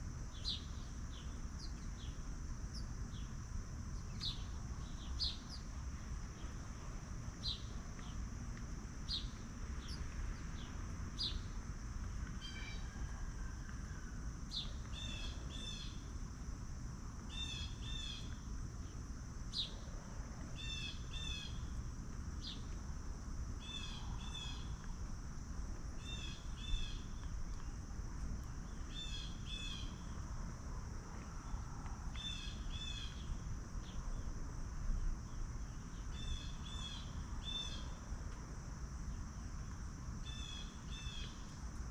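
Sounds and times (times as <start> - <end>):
high insect drone: 0.0 - 41.9
low outdoor rumble: 0.0 - 41.9
small birds calling: 31.4 - 34.1.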